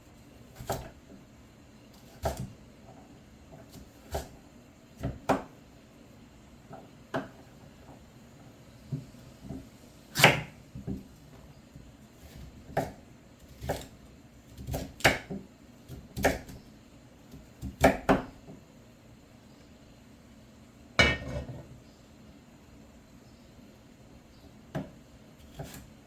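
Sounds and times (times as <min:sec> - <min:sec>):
cookware and utensils knocking: 0:21.0 - 0:21.5.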